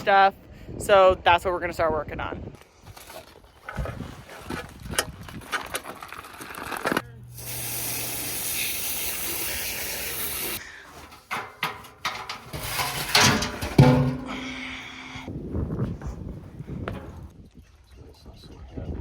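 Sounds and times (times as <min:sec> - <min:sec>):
low hum: 0:11.3 - 0:15.3.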